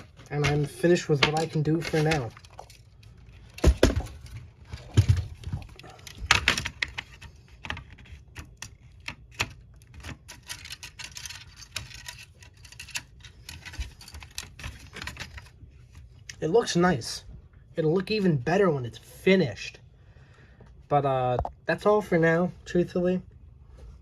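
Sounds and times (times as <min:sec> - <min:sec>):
small parts clicking and tapping: 0:00.0 - 0:16.0.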